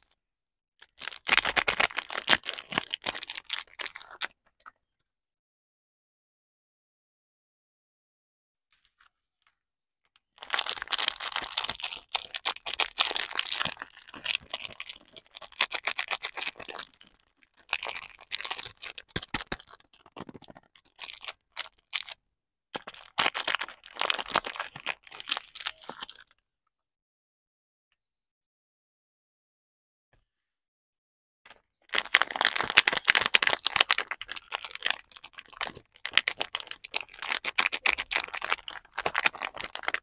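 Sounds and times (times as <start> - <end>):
soap wrapper crinkling: 0.8 - 4.4, 10.4 - 26.3, 31.5 - 40.0.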